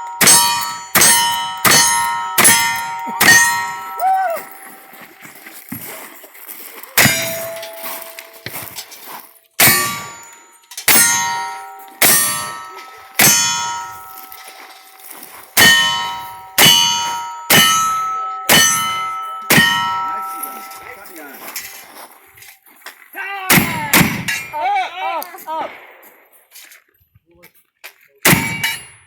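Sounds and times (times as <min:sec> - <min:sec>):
steel target clanging: 0:00.0 - 0:05.0, 0:07.0 - 0:21.8, 0:23.5 - 0:24.7, 0:28.3 - 0:29.0
gunshots: 0:23.5 - 0:24.5, 0:25.5 - 0:26.4, 0:28.3 - 0:28.8.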